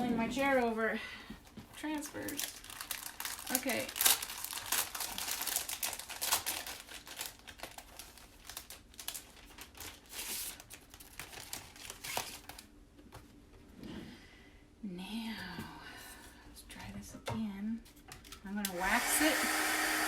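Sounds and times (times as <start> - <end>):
plastic sheets crinkling: 1.4 - 12.7.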